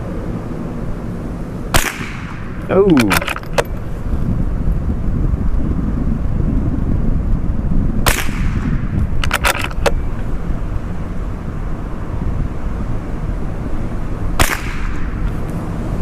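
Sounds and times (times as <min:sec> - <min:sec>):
rifle shot: 0:01.7 - 0:03.7, 0:08.0 - 0:09.7, 0:14.4 - 0:15.1
wind buffeting microphone: 0:01.8 - 0:16.0
rifle bolt metallic clicks: 0:02.8 - 0:03.8, 0:09.2 - 0:10.0.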